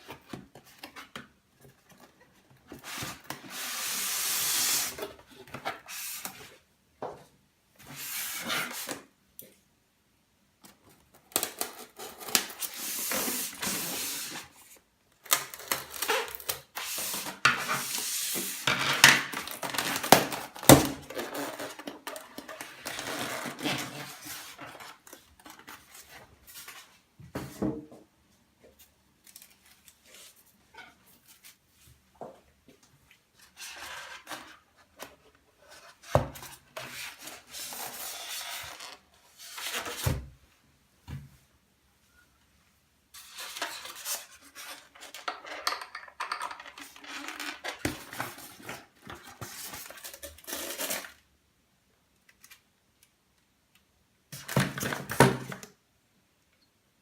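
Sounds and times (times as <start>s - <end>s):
packaging rubbing and scraping: 15.3s - 26.8s, 46.7s - 51.2s.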